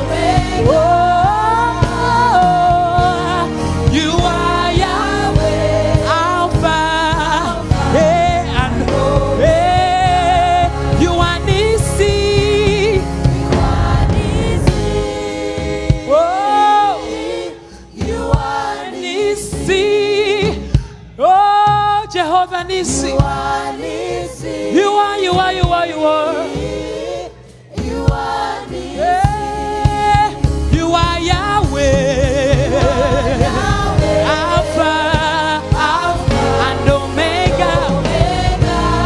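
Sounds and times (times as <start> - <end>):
band with keyboard and bass: 0.0 - 21.2, 25.4 - 39.0
gospel choir singing: 0.0 - 39.0.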